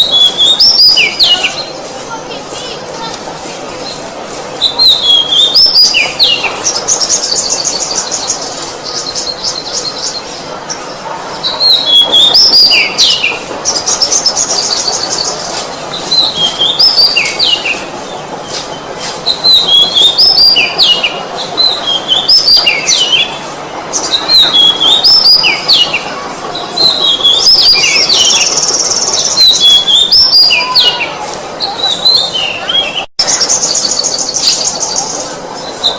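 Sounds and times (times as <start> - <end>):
bird singing whistled notes: 0.0 - 1.7, 4.6 - 10.3, 19.2 - 23.4, 24.0 - 26.0, 26.8 - 35.2.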